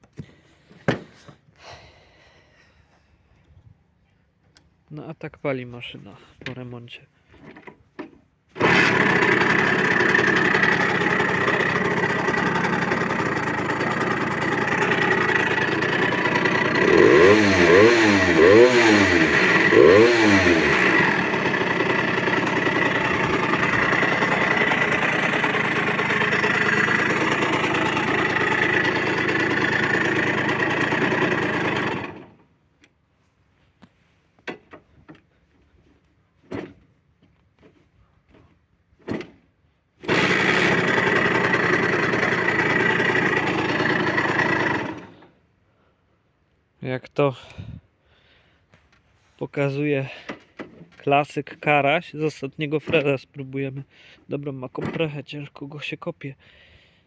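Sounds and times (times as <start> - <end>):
two-stroke engine running and revving: 8.6 - 32.4, 40.0 - 45.2.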